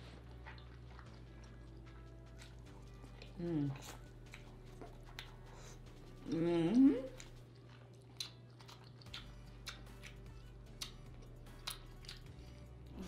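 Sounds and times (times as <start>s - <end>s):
person chewing: 0.0s - 6.4s, 7.1s - 13.0s
lip smacks and clicks: 8.0s - 12.6s.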